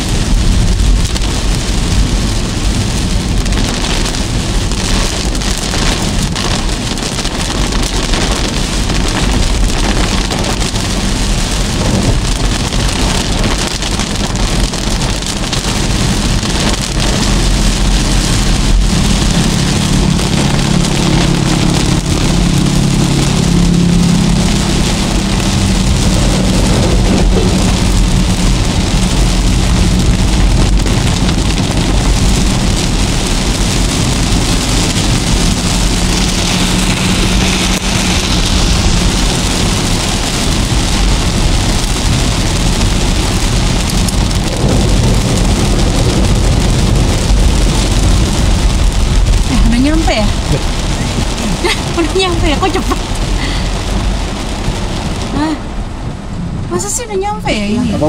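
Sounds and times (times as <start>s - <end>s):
car engine and tyre hum: 0.0s - 58.0s
heavy rain on car roof: 0.0s - 58.0s.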